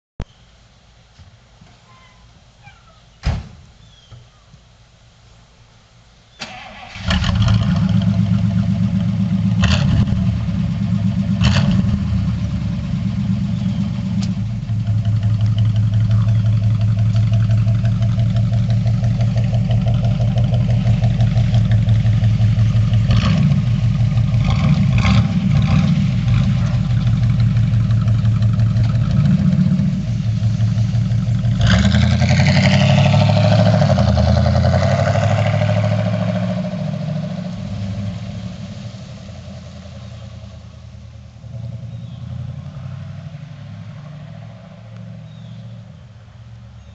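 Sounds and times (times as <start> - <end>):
car engine idling and accelerating: 4.6 - 46.9
engine knocks: 13.6 - 34.9.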